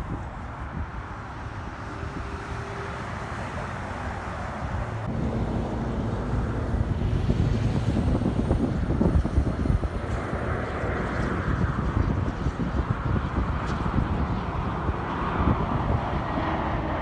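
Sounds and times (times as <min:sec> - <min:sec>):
jet airliner engine rumble: 0:00.0 - 0:17.0.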